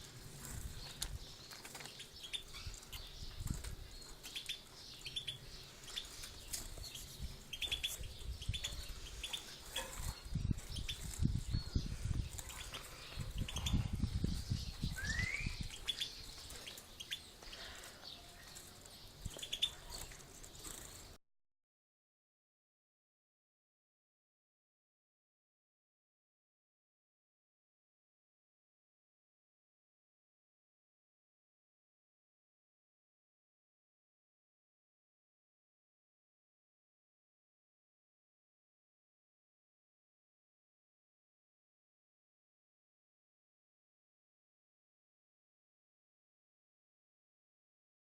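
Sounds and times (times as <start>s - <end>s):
pet birds chirping: 0.0s - 21.2s.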